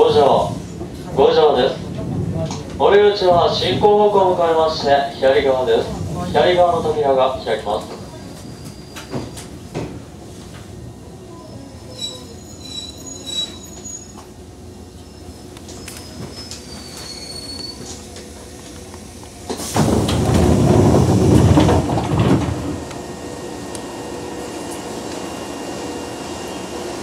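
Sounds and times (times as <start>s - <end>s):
standing train hum: 0.0s - 27.0s
faint brake squeals: 8.1s - 9.6s, 11.3s - 14.4s, 15.0s - 18.2s
electric train stopping: 11.2s - 27.0s
air rush of doors opening: 19.3s - 25.8s.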